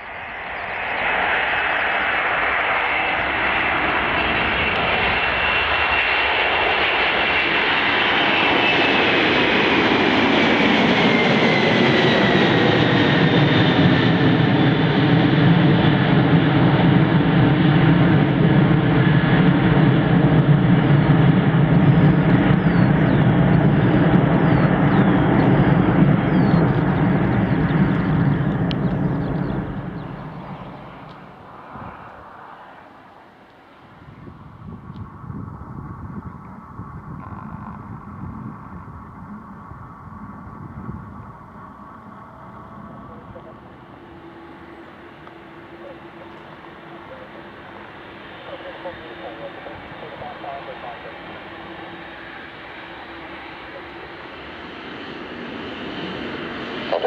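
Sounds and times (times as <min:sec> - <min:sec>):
deep jet engine rumble: 0:00.0 - 0:57.0
jet engines whining: 0:00.0 - 0:57.0.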